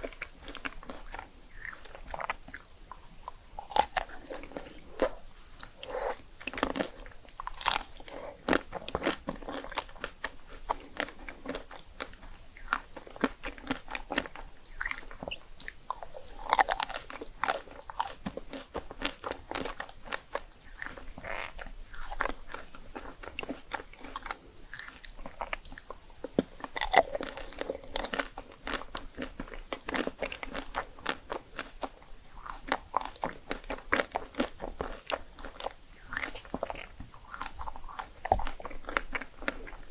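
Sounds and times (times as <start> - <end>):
crunching rice cakes: 0.0 - 39.9.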